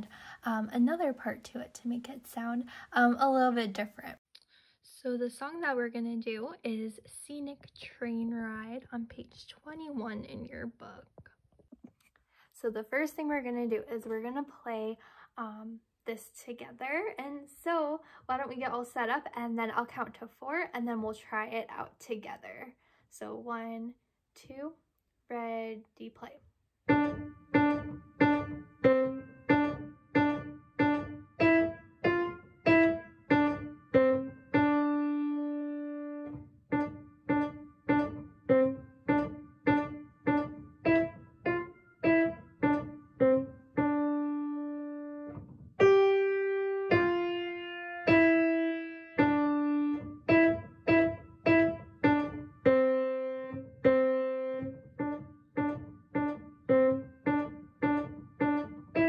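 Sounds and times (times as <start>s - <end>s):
piano playing simple melody: 26.8s - 59.0s.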